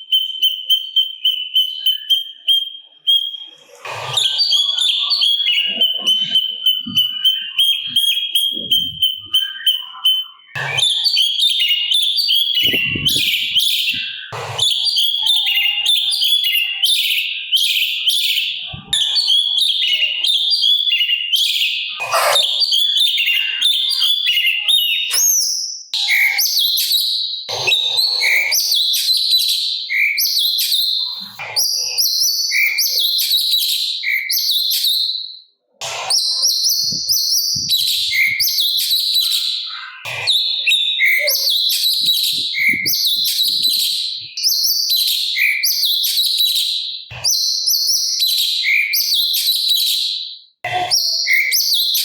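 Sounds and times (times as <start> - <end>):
bird chirping rapidly: 21.9 - 23.0.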